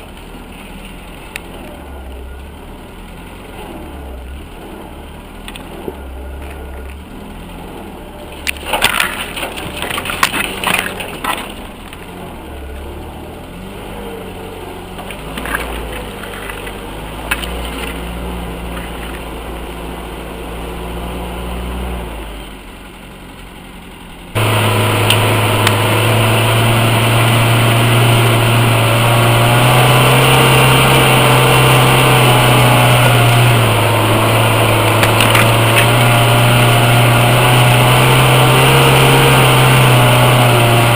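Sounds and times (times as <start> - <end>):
off-road vehicle engine running: 0.0 - 40.9
sharp cracks and knocks: 8.4 - 12.2, 15.0 - 18.1, 34.7 - 36.3.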